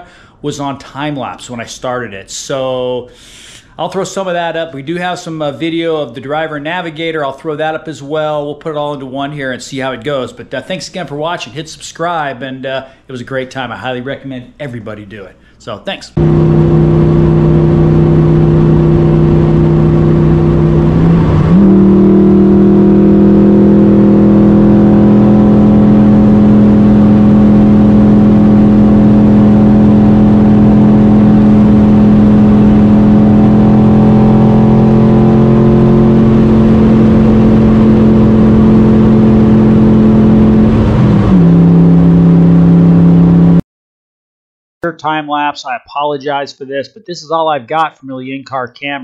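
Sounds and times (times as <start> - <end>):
car engine accelerating: 16.2 - 43.6.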